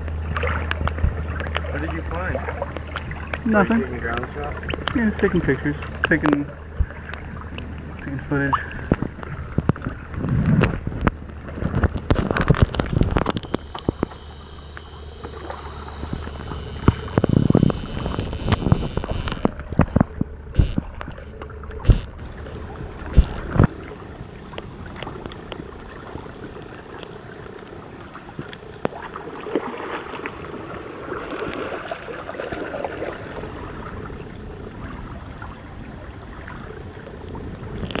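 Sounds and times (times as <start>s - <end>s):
water gurgling along a hull: 0.0s - 38.0s
wind on microphone: 8.6s - 14.1s, 15.8s - 26.6s.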